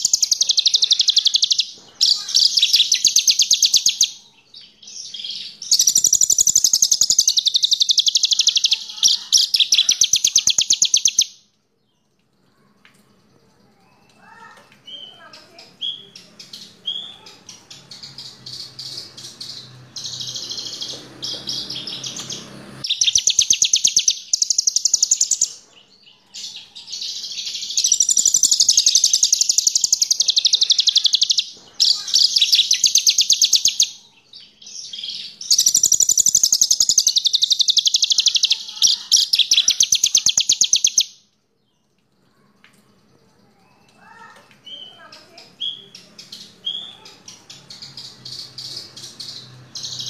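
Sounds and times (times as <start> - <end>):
bush lark singing: 0.0 - 1.7, 5.7 - 11.3, 18.0 - 25.6, 27.6 - 34.0, 35.4 - 41.1.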